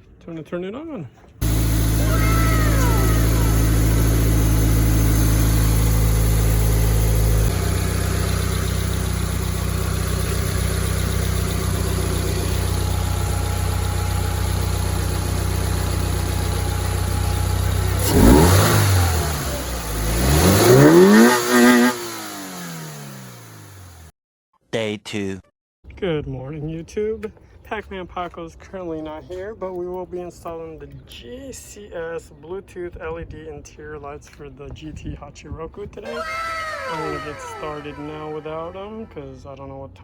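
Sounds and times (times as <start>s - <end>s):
car engine idling and revving: 1.4s - 24.1s, 36.2s - 38.9s.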